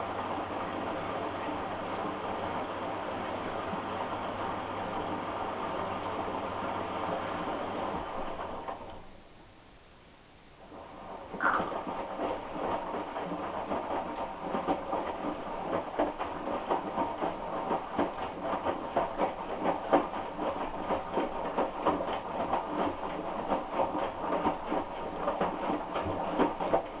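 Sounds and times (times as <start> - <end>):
washing machine drum tumbling laundry: 11.7 - 27.0.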